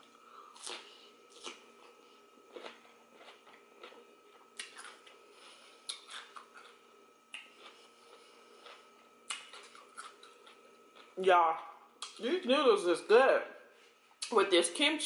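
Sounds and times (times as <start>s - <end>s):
faint steady hum: 0.0s - 15.0s
cucumber crunching: 0.5s - 5.2s, 5.8s - 12.2s.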